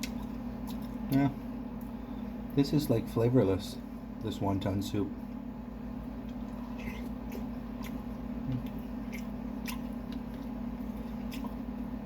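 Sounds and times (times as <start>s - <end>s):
chewing: 0.0s - 1.3s, 6.2s - 12.0s
steady low hum: 0.0s - 12.0s.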